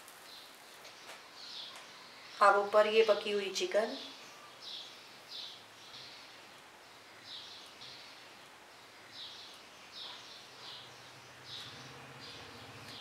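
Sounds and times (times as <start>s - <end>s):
faint bird chirps: 4.0s - 13.0s.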